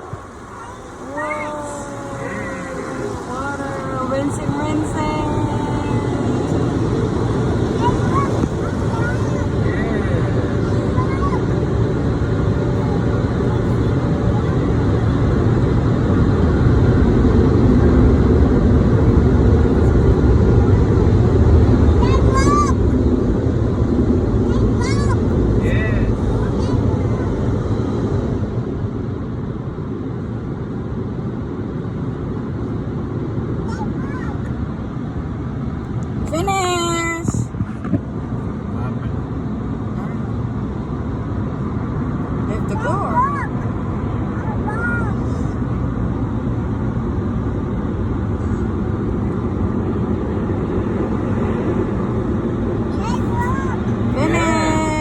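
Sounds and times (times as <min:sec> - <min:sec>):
car wash rushing spray: 0:00.0 - 0:15.6
low rumbling in car cabin: 0:00.0 - 0:55.0.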